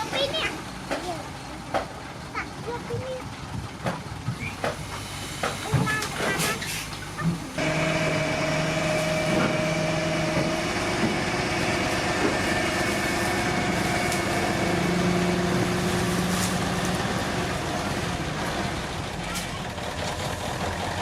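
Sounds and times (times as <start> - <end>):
heavy diesel machinery running: 0.0 - 21.0.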